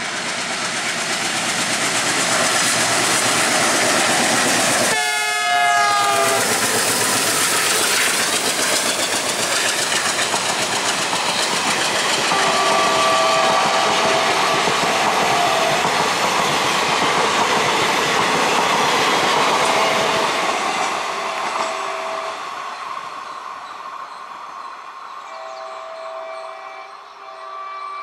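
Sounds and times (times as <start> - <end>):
train wheels clattering over joints: 0.0 - 5.0, 6.0 - 21.9
train horn blasts: 4.9 - 6.5, 12.3 - 15.8, 21.7 - 22.4, 25.3 - 28.0.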